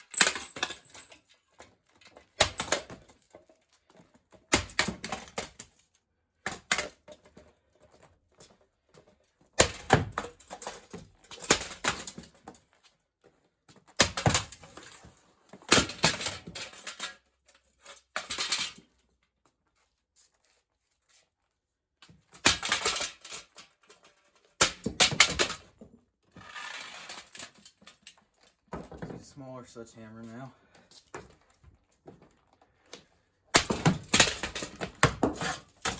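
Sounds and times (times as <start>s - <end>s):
metal and plastic parts clattering: 0.0s - 5.8s, 13.9s - 19.0s, 22.1s - 29.2s, 33.5s - 35.9s
sledgehammer smashing ceiling fan: 33.5s - 35.9s.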